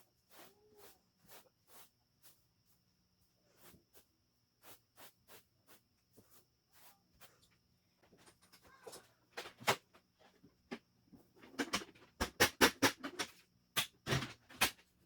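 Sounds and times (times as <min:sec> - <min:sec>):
plastic clicks and knocks: 0:11.4 - 0:14.9.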